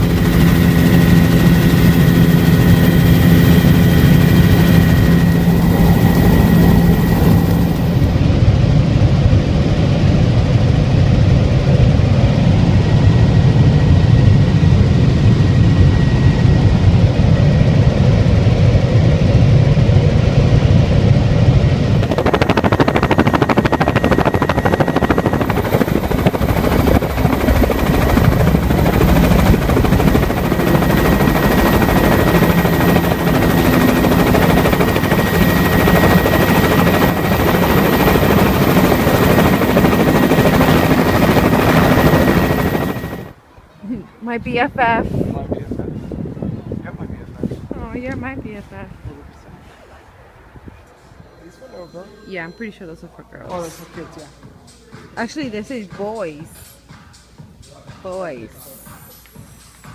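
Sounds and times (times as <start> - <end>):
helicopter engine and rotor: 0.0 - 43.4.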